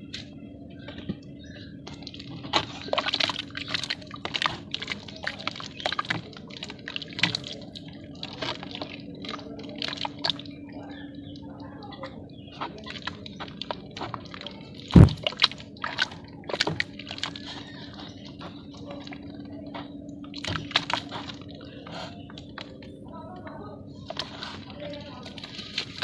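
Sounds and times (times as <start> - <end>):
wet clay crumbling and crackling: 0.0 - 23.0, 23.9 - 26.0.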